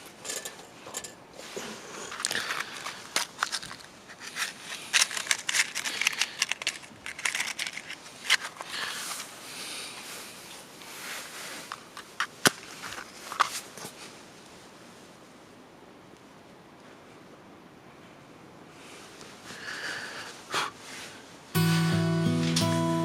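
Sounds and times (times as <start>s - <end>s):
gear crinkling and rustling: 0.0s - 14.5s.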